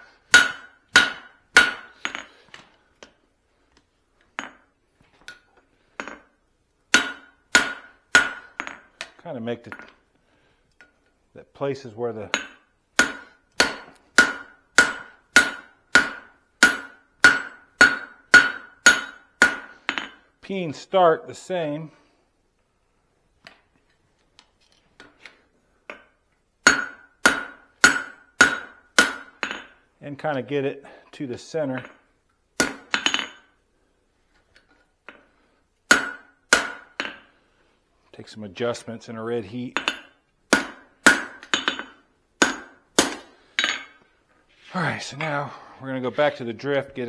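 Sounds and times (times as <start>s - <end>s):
hammer striking metal on anvil: 0.3s - 2.3s, 6.9s - 8.9s, 12.3s - 20.2s, 26.6s - 29.8s, 32.6s - 33.5s, 35.9s - 37.3s, 39.8s - 43.9s.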